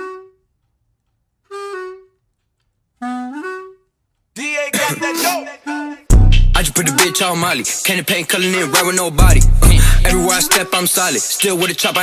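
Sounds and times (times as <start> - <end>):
saxophone-like phrases: 4.4 - 11.3
music beat: 4.4 - 12.0.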